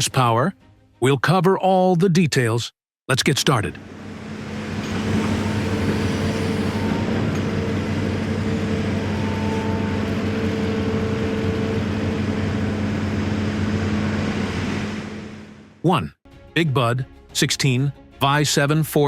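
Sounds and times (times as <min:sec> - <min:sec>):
tractor engine running: 0:03.8 - 0:15.8.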